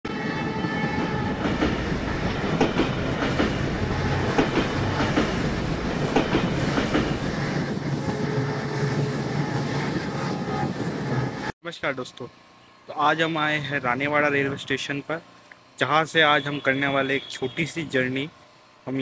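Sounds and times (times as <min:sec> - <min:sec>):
train rumbling: 0:00.1 - 0:11.5
wheels clacking over rail joints: 0:01.4 - 0:07.2.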